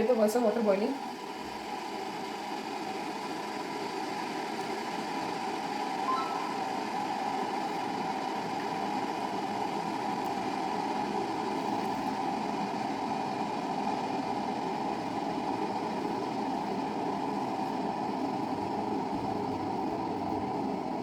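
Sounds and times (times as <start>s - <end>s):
water boiling in electric kettle: 0.0s - 6.0s, 7.0s - 21.0s.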